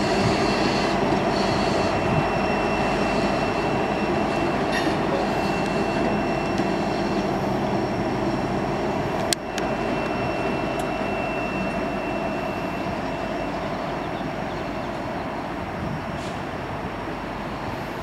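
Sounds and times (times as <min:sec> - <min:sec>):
diesel locomotive running: 0:00.0 - 0:18.0
train cars rolling rumble: 0:00.0 - 0:18.0
thin high-pitched whine: 0:00.5 - 0:13.8.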